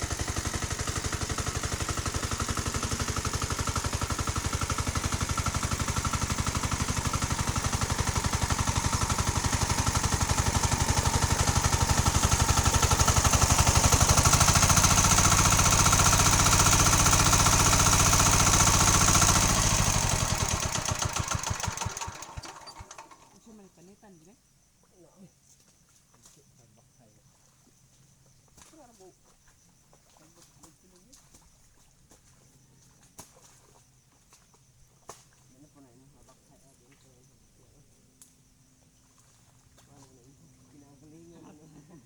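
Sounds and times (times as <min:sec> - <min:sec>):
tractor engine running: 0:00.0 - 0:23.4.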